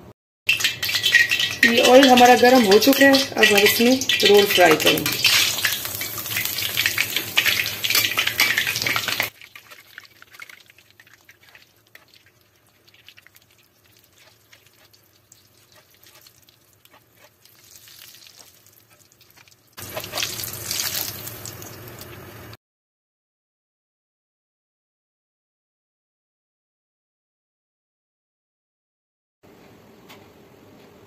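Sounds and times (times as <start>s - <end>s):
food deep-frying in oil: 0.5s - 22.6s.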